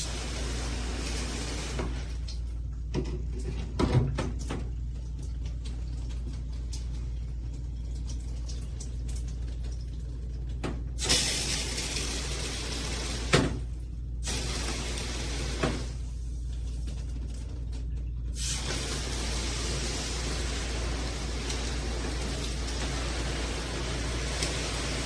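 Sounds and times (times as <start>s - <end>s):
shower water spraying: 0.0s - 2.5s, 11.0s - 17.0s, 18.3s - 25.0s.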